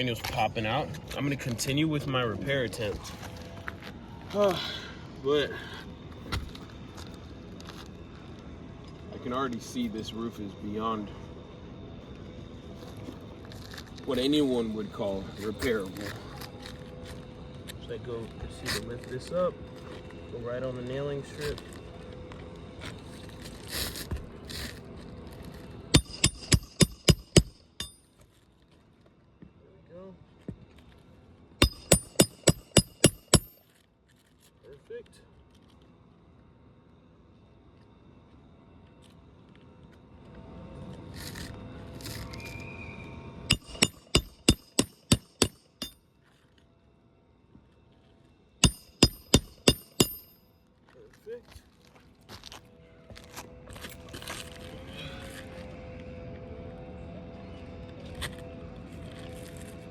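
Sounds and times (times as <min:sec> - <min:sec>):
hammer blows on roofing nail: 0:25.9 - 0:28.0, 0:31.6 - 0:33.6, 0:43.5 - 0:46.0, 0:48.6 - 0:50.5.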